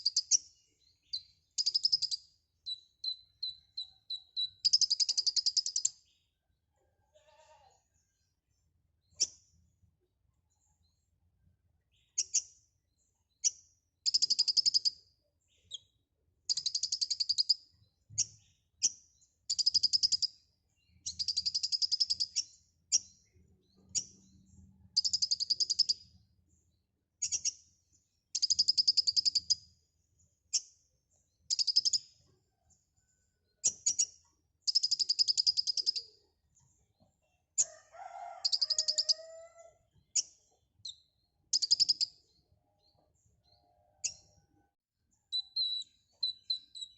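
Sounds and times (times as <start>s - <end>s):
bird high chattering trills: 38.4s - 39.6s, 45.3s - 46.9s.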